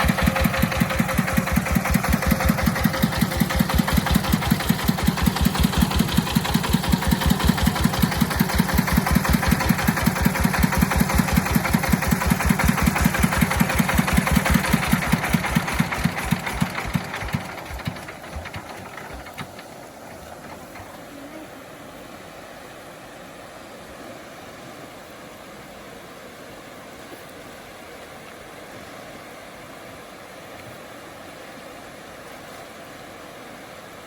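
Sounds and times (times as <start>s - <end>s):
vehicle engine chugging: 0.0s - 21.2s.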